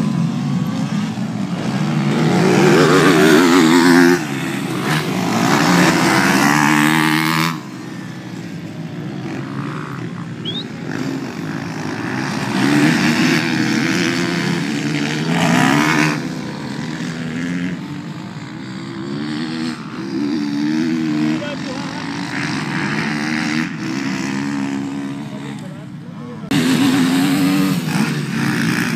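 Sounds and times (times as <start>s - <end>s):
dirt bike engines revving: 0.0s - 28.9s.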